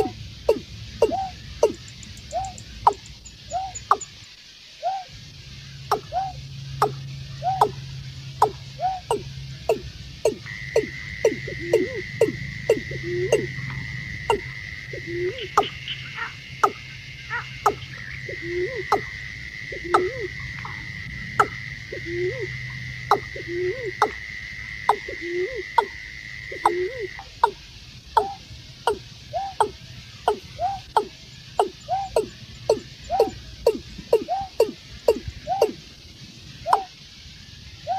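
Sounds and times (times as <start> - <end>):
bird croaking calls: 0.0 - 37.9
steady high whine: 0.0 - 37.9.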